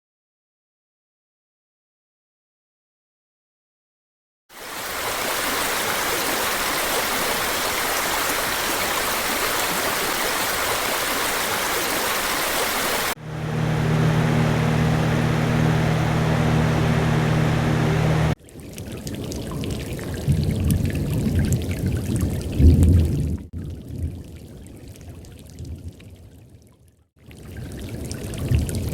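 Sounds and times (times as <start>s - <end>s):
deep fan-like hum: 13.2s - 18.4s.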